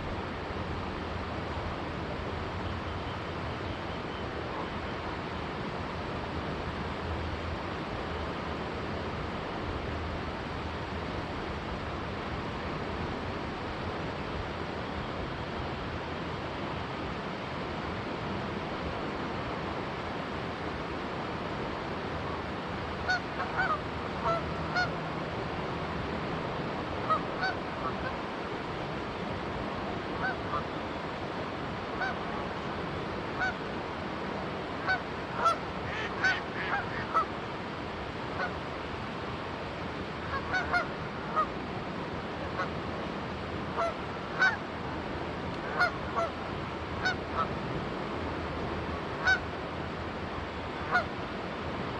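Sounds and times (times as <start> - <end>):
river rushing: 0.0 - 51.9
geese honking: 23.0 - 25.0, 27.0 - 28.1, 32.0 - 32.2, 33.4 - 33.6, 34.8 - 37.3, 40.2 - 41.5, 43.8 - 44.6, 45.7 - 46.3, 47.0 - 47.5, 49.2 - 49.4, 50.9 - 51.1.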